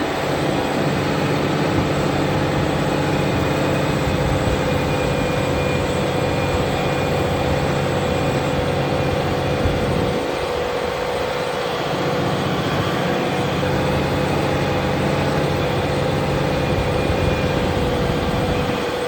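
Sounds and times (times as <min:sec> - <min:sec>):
tractor diesel engine droning: 0:00.0 - 0:19.0.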